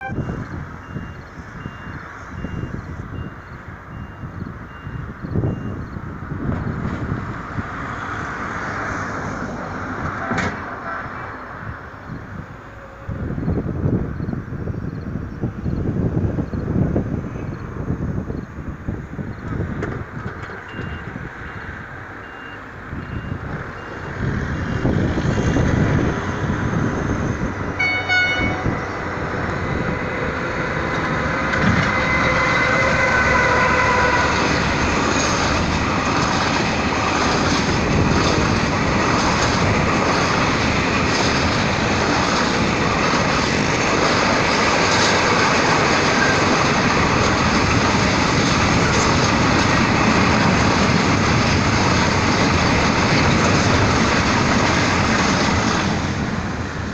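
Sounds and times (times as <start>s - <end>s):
train rumbling past: 0.0s - 56.9s
train horn blast: 27.8s - 29.0s, 29.7s - 34.8s.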